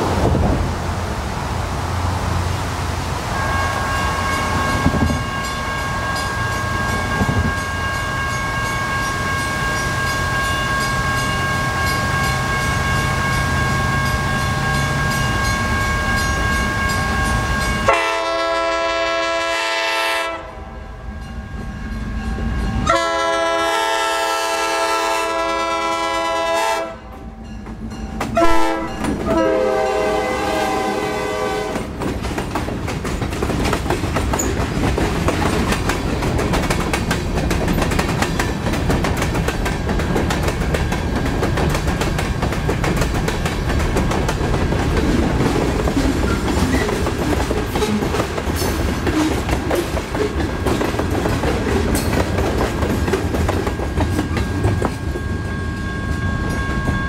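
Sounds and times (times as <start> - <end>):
freight train rumbling past: 0.0 - 57.0
locomotive horn blast: 3.3 - 5.5, 17.8 - 20.7, 22.8 - 27.3, 28.4 - 32.0
wheels clattering over rail joints: 31.8 - 55.4.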